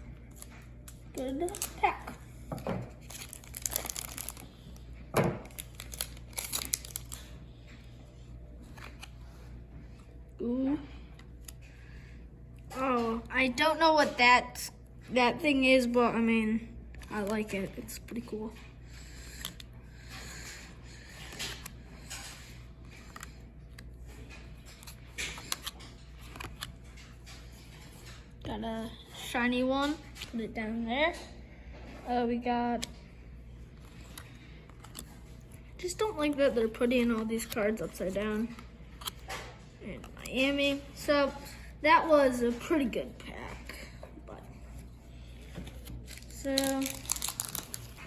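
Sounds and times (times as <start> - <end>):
low room hum: 0.0 - 48.0
cards clicking and rustling: 0.2 - 8.0, 8.6 - 10.1, 16.9 - 28.3, 32.8 - 41.0, 45.3 - 48.0
wrapper crinkling and tearing: 0.3 - 2.0, 2.9 - 4.8, 5.4 - 7.4, 45.7 - 48.0
clicks of cards handled: 21.2 - 28.2, 36.2 - 40.4.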